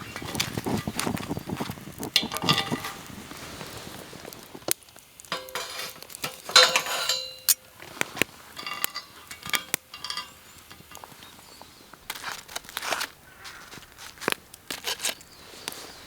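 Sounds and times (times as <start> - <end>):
utensils clinking and scraping dishes: 0.0 - 4.4, 5.3 - 13.1.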